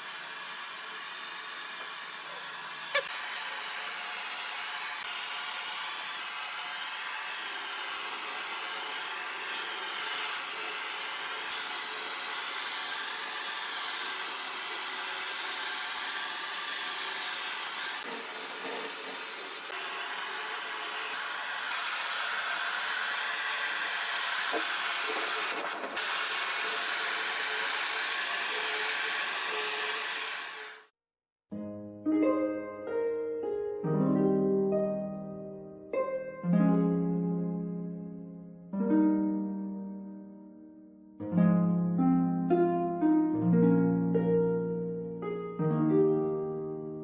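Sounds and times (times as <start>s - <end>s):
power tool motor whirring: 0.0s - 30.9s.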